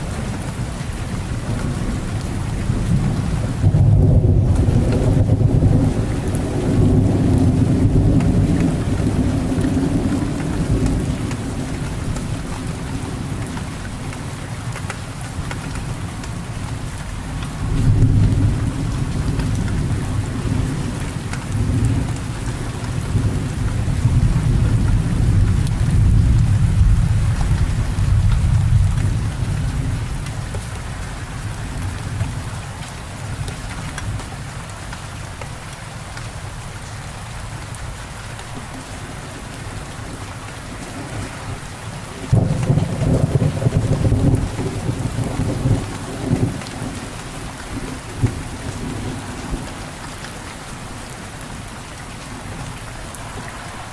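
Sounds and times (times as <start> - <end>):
low thunder rumble: 0.0 - 13.4, 17.5 - 30.5, 42.2 - 49.9
steady rain falling: 0.0 - 53.9.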